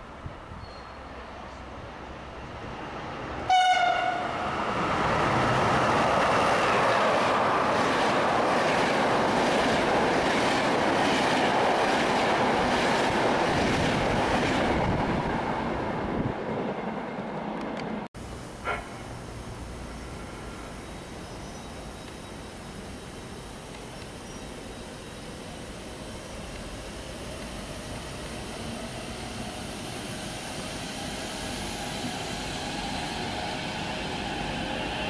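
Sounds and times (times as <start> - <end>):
wheels rushing on rail: 0.2 - 35.0
train horn blast: 3.5 - 4.4.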